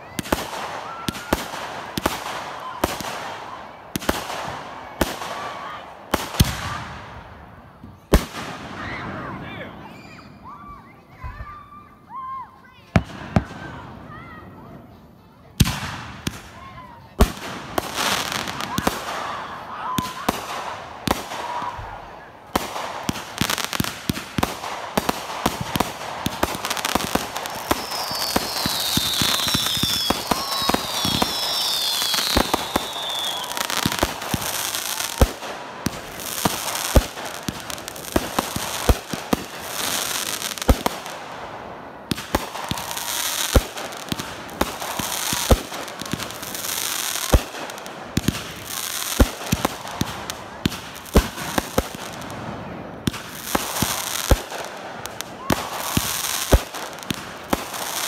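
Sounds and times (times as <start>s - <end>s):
falling firework whistles: 0.0s - 3.3s, 8.0s - 11.8s, 25.4s - 35.3s
firework crackle: 0.0s - 10.6s, 15.2s - 58.0s
firework shots bursting: 15.6s - 16.6s, 22.5s - 58.0s.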